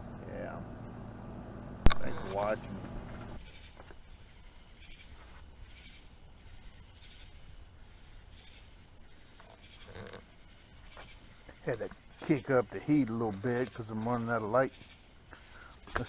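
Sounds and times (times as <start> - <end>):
low background hum: 0.0 - 4.7
faint insect chirping: 0.0 - 16.0.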